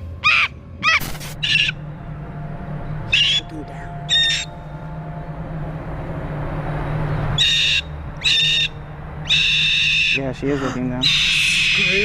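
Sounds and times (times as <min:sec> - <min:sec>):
parrot screaming: 0:00.2 - 0:01.8, 0:04.1 - 0:04.5, 0:07.4 - 0:12.0.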